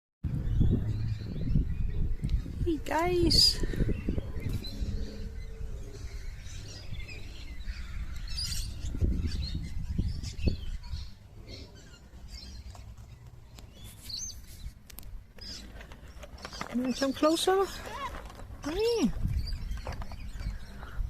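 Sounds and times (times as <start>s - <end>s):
low rumble: 0.2s - 12.6s
small birds chirping: 0.2s - 21.0s.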